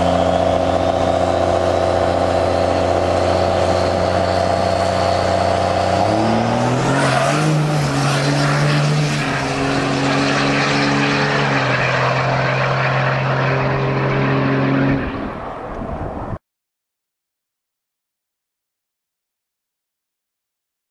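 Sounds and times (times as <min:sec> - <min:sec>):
diesel truck engine revving: 0:00.0 - 0:15.4.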